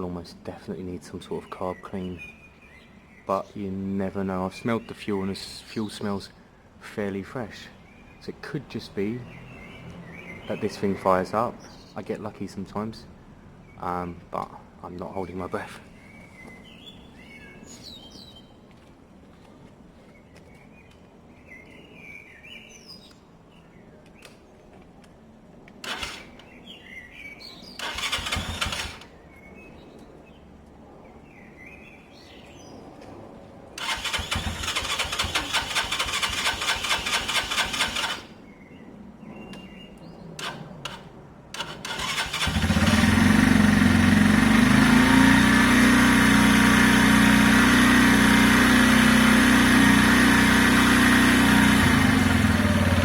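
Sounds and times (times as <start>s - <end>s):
motorcycle engine cranking: 25.8s - 26.4s, 27.8s - 29.1s, 33.8s - 38.3s, 40.4s - 41.0s, 41.6s - 53.0s
motorcycle engine idling: 27.8s - 29.0s, 33.8s - 38.3s, 41.6s - 53.0s.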